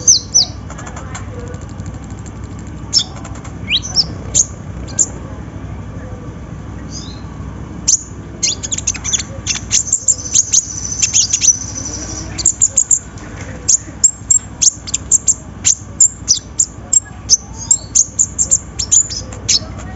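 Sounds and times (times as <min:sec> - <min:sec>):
sunbird high sharp chirps: 0:00.0 - 0:00.8, 0:02.9 - 0:05.2, 0:06.9 - 0:13.1, 0:13.7 - 0:19.8
sunbird high trill: 0:07.9 - 0:13.1.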